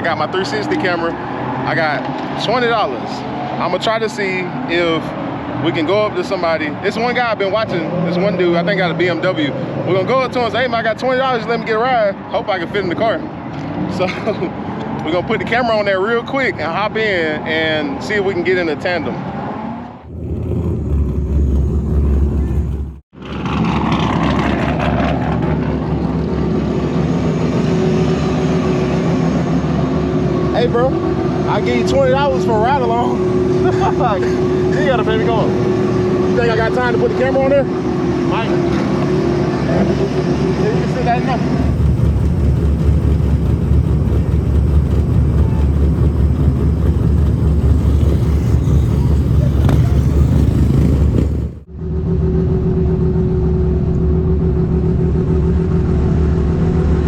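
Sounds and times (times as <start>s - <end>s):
car engine droning: 0.0s - 57.0s
falling pitch sweep: 20.0s - 23.0s, 25.9s - 57.0s
car engine idling: 20.0s - 23.1s, 41.6s - 51.7s.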